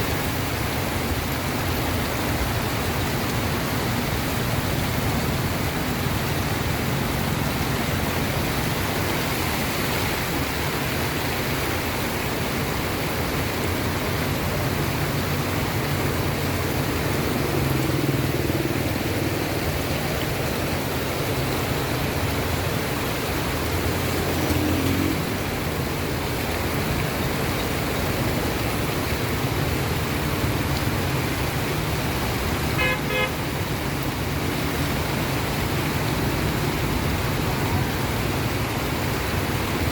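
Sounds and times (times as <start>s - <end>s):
road traffic engines passing: 0.0s - 39.9s
steady rain hiss: 0.0s - 39.9s
short vehicle horn toot: 32.8s - 33.3s.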